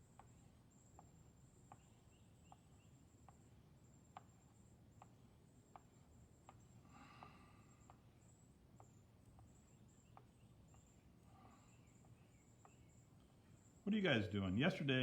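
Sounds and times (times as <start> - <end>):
soft ticks: 0.1 - 3.4, 4.1 - 8.0, 8.8 - 11.0
faint chirps: 0.2 - 15.0.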